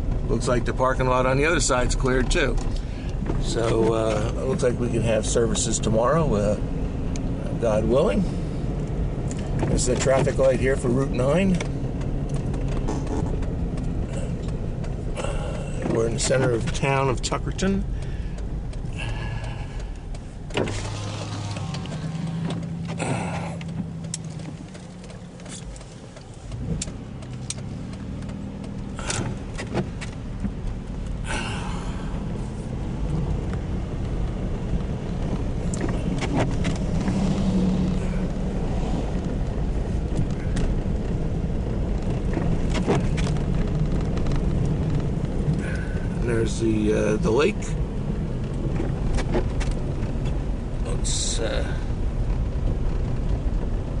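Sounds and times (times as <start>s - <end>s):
car engine hum: 0.0s - 54.0s
tyre noise: 9.4s - 47.8s.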